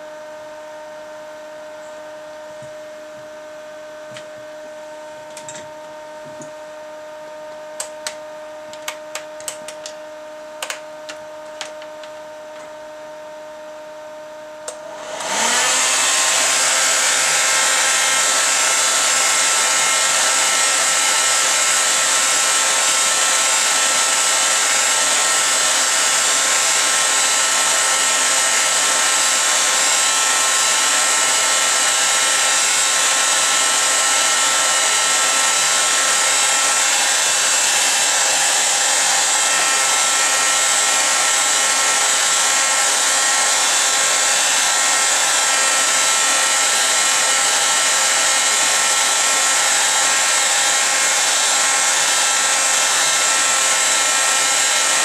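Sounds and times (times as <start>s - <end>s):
faint whine tones: 0.0s - 14.8s
electric fan whooshing: 14.6s - 22.1s.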